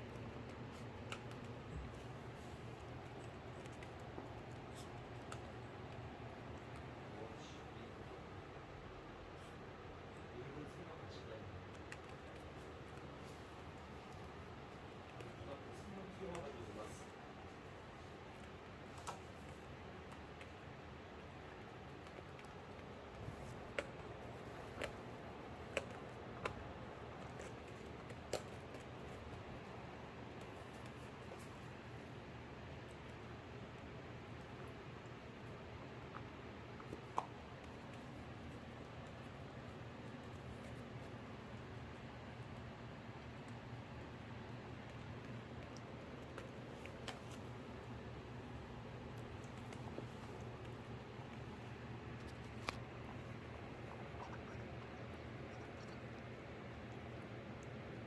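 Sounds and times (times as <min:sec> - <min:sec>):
small clicks and scratches: 0:00.0 - 0:07.1
steady room hiss: 0:00.0 - 0:58.0.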